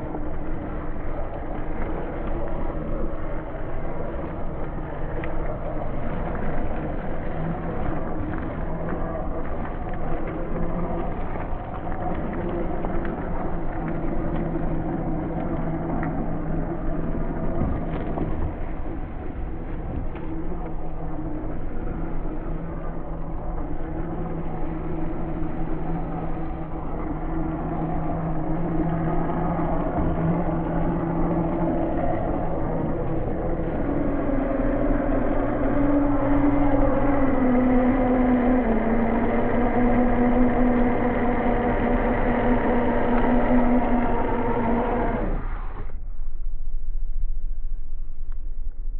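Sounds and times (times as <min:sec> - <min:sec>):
rough rumbling: 0:00.0 - 0:46.6
toy car motor droning: 0:36.0 - 0:45.6.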